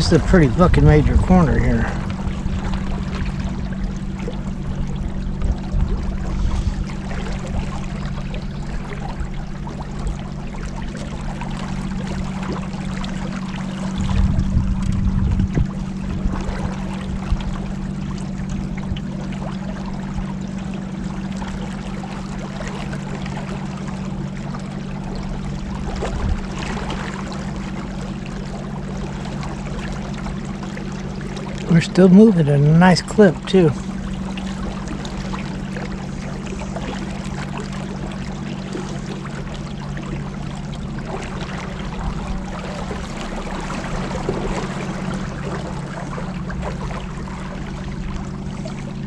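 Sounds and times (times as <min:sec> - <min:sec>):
boat motor humming: 0:00.0 - 0:49.0
water splashing past hull: 0:00.0 - 0:49.0
heavy low thumping: 0:04.8 - 0:07.8, 0:13.9 - 0:16.6.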